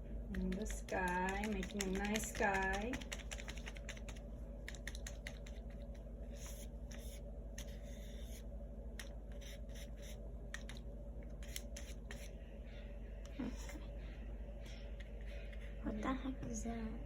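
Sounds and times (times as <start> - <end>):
low hum: 0.0 - 17.0
paintbrush tapping on paper: 0.3 - 5.7.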